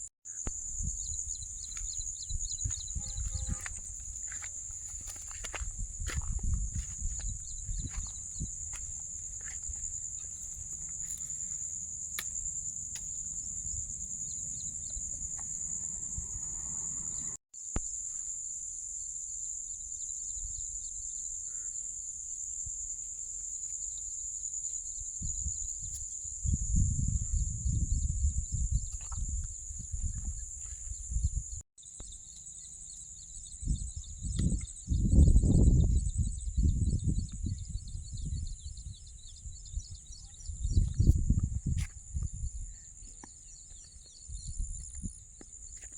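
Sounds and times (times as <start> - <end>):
faint pulsing chirps: 0.3 - 5.1, 6.9 - 17.4
insects buzzing: 0.3 - 45.9.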